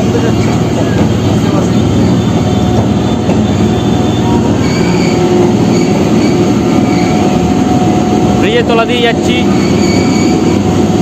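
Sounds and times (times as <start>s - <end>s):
rumble of wheels on track: 0.0s - 11.0s
metallic wheel squeal: 0.3s - 7.5s, 9.4s - 10.8s.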